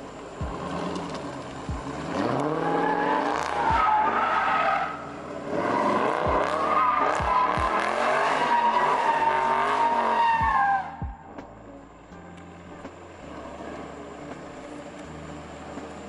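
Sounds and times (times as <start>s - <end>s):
car engine revving hard: 0.0s - 11.1s
tires squealing: 0.0s - 11.2s.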